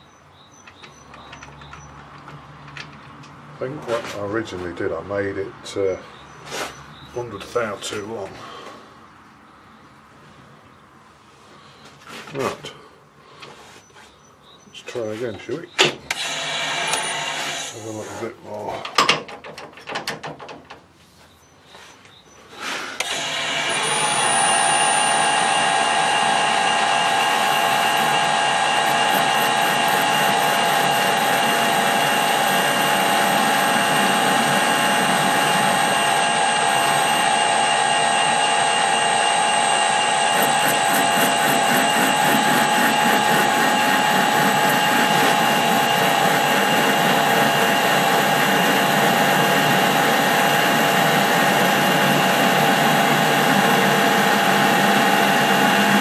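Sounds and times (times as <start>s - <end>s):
metal lathe whining: 16.1s - 17.9s, 23.0s - 56.0s.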